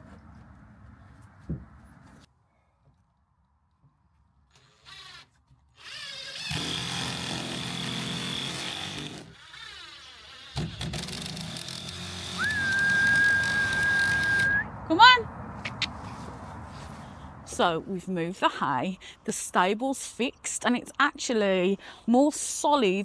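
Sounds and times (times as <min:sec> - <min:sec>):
small motor whining: 0:04.6 - 0:14.6.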